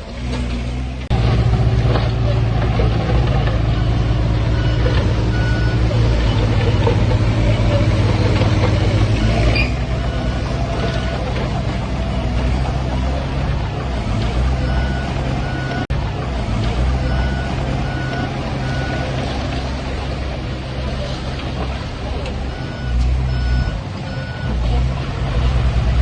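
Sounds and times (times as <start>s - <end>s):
heavy diesel engines running: 0.0s - 26.0s
reversing alarm beeping: 3.6s - 13.3s, 14.4s - 15.9s, 22.5s - 24.6s.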